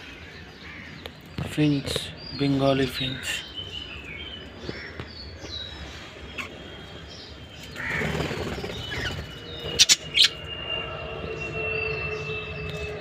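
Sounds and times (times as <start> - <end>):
cage birds chirping: 0.0 - 13.0
harsh noisy bird call: 4.6 - 13.0.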